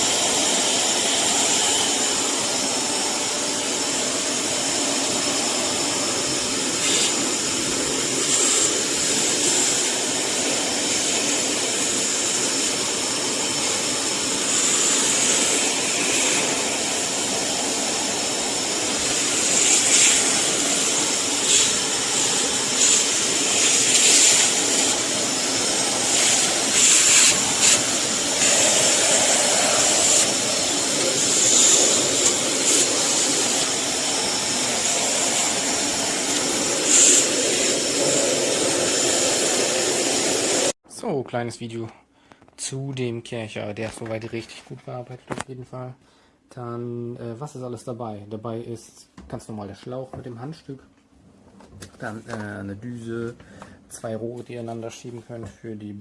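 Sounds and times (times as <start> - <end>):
vacuum cleaner motor drone: 0.0 - 40.8.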